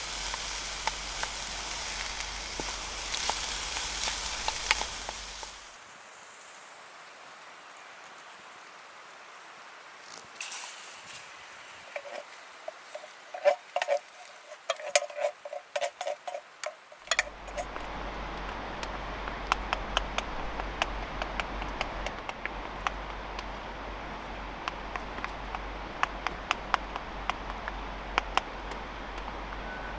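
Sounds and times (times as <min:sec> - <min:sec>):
sharp crackles: 0:00.0 - 0:05.8
food sizzling in a pan: 0:00.0 - 0:05.9, 0:10.1 - 0:14.6.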